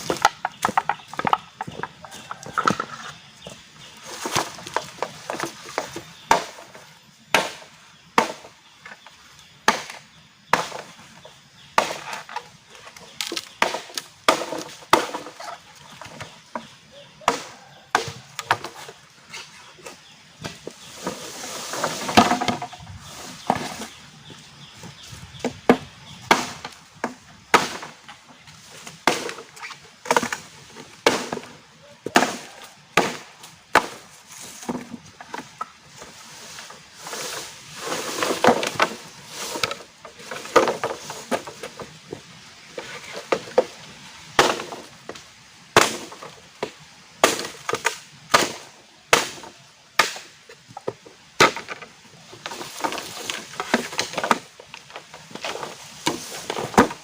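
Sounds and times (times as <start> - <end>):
wood rustling and splitting: 0.0 - 9.1, 9.7 - 57.0
axe chopping wood: 7.3 - 8.5, 9.7 - 10.9, 25.7 - 26.8, 27.5 - 27.9, 31.0 - 31.5, 32.1 - 34.0, 44.4 - 44.8, 45.8 - 50.4, 51.4 - 51.8.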